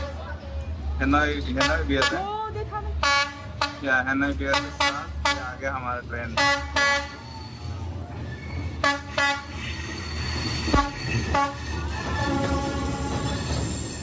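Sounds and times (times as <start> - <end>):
diesel locomotive rumbling past: 0.0 - 14.0
train horn toots: 6.4 - 7.2, 8.8 - 9.9, 10.6 - 13.5.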